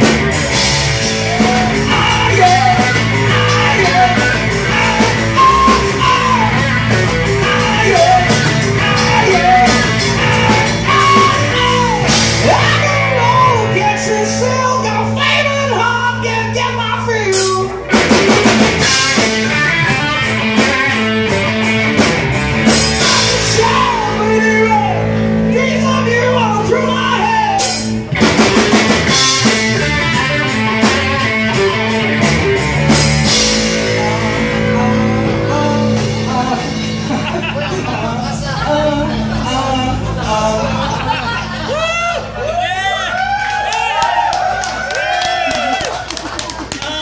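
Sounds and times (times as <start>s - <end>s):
live rock band playing: 0.0s - 47.0s
person singing: 1.0s - 21.0s, 22.6s - 28.0s, 33.2s - 41.8s.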